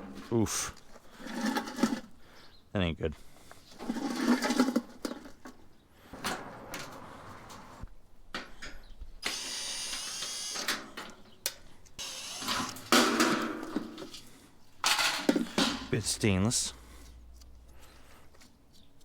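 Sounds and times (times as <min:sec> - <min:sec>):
power tool whirring: 0:09.2 - 0:11.4, 0:12.0 - 0:13.7.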